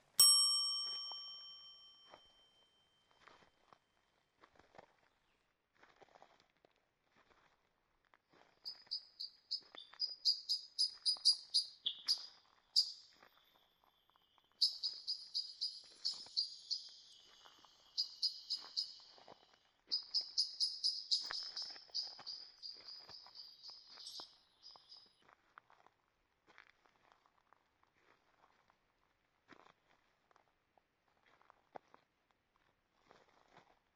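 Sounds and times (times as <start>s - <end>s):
soft footsteps on trail: 3.1s - 33.9s
songbird singing rapid high notes: 8.7s - 13.0s, 14.6s - 19.2s, 19.9s - 25.0s.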